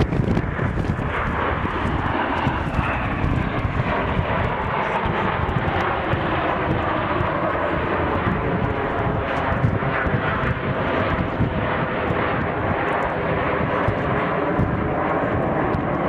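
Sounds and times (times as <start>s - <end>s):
aircraft engine flying by: 0.0s - 16.0s.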